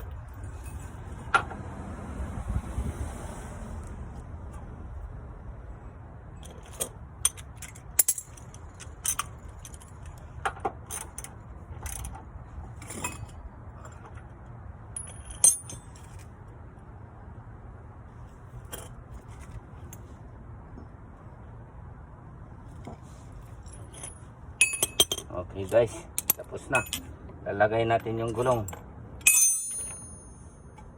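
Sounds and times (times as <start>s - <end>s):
metal hand tools clinking: 15.0s - 16.2s, 23.6s - 27.1s, 28.1s - 30.8s
short high metallic ring: 29.2s - 30.8s.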